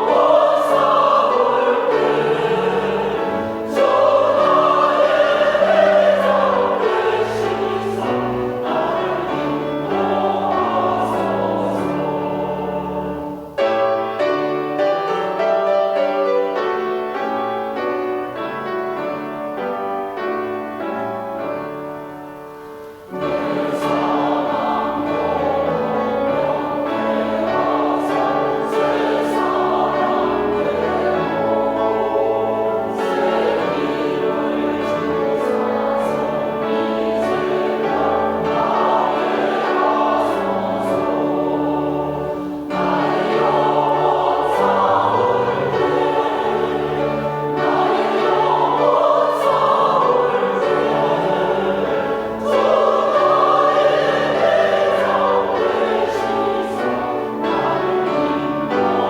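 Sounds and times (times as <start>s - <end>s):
church choir singing a hymn: 0.0s - 59.0s.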